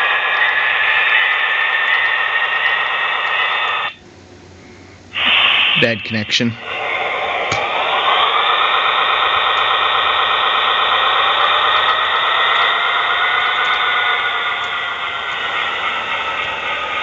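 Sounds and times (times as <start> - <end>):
model train motor whine: 0.0 - 4.0, 5.2 - 17.0.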